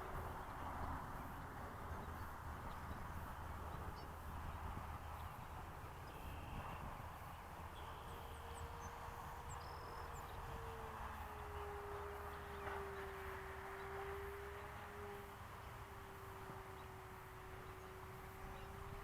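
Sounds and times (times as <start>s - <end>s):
model plane motor whine: 4.7s - 19.0s.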